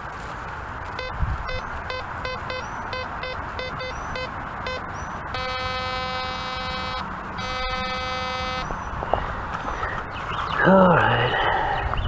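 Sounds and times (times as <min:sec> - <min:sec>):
metal detector long steady tones: 0:00.9 - 0:08.8
metal detector short beeps: 0:01.0 - 0:08.7.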